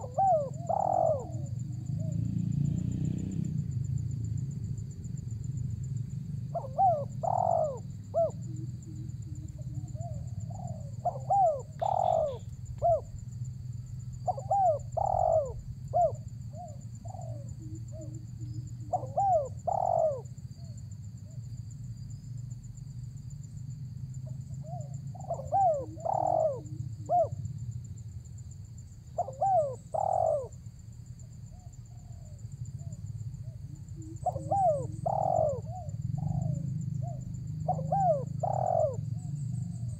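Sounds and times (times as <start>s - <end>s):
dove cooing: 0.0s - 2.4s, 6.4s - 13.2s, 14.1s - 21.4s, 24.2s - 27.5s, 29.1s - 30.6s, 31.5s - 39.9s.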